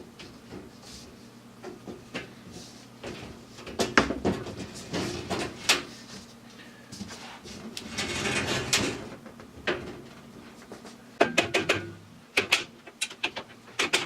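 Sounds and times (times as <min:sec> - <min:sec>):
objects knocking and clacking: 0:11.2 - 0:14.0.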